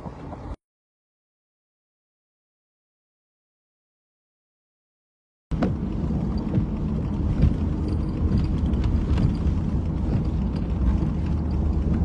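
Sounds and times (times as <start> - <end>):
storm wind buffeting microphone: 5.5 - 12.0.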